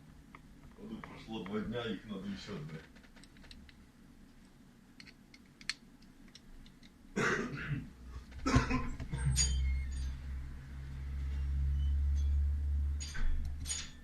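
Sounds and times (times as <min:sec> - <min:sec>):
low steady hum: 0:00.0 - 0:14.0
person coughing: 0:07.2 - 0:09.3.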